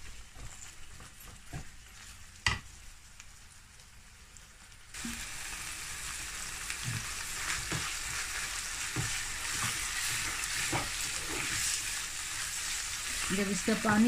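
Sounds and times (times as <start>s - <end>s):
mince and onions sizzling in pan: 0.0s - 14.0s
wooden spatula scraping a pan: 6.8s - 14.0s.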